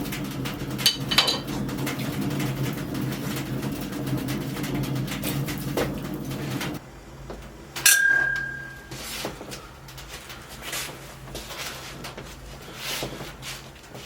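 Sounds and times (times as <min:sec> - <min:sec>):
kitchenware clinking: 0:00.0 - 0:06.8, 0:07.8 - 0:09.0
low hum: 0:07.8 - 0:09.1.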